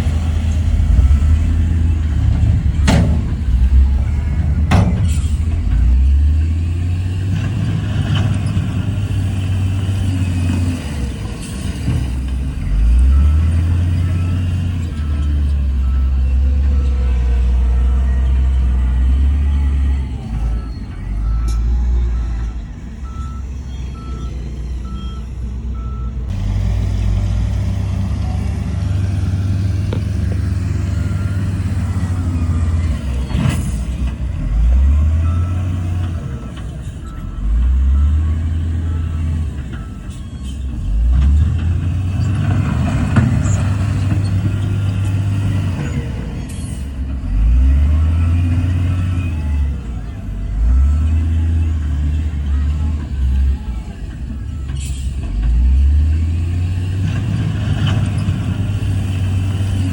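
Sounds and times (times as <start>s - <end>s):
diesel engine revving: 0.0s - 59.9s
reversing alarm beeping: 0.2s - 7.0s, 10.0s - 26.2s, 29.5s - 41.1s.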